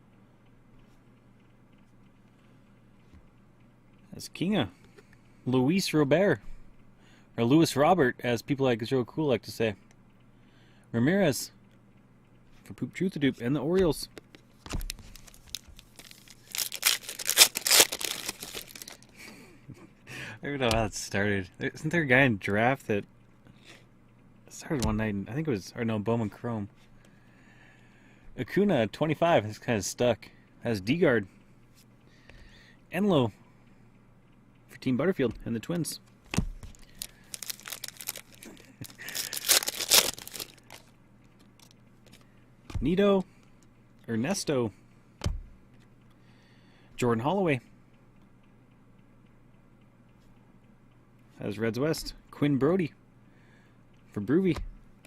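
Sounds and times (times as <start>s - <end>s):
wrapper tearing and crinkling: 14.8s - 19.1s, 36.7s - 40.9s.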